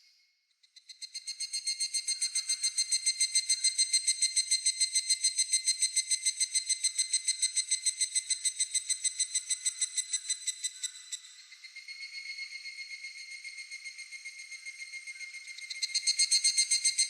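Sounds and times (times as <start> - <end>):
cicada calling in ringing pulses: 0.8 - 17.0.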